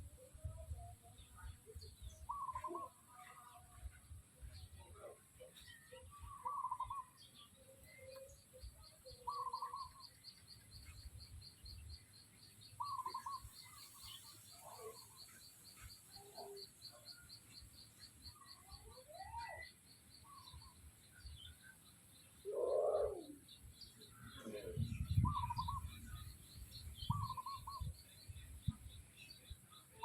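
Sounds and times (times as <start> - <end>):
steady high bird chirp: 1.2 - 3.2, 4.4 - 30.0
rapid trilled bird calls: 12.8 - 15.4, 25.2 - 28.0.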